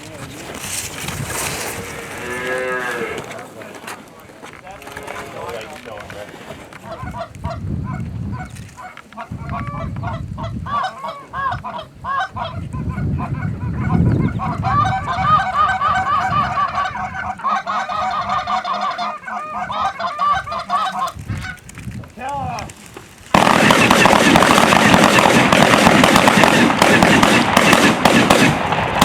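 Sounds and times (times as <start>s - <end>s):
geese honking: 6.8s - 21.6s, 23.3s - 28.6s.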